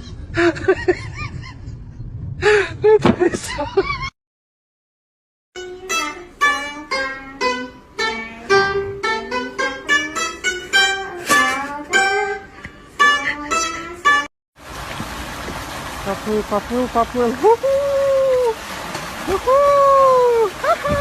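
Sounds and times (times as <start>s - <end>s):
plucked string instrument tune: 5.6s - 14.3s.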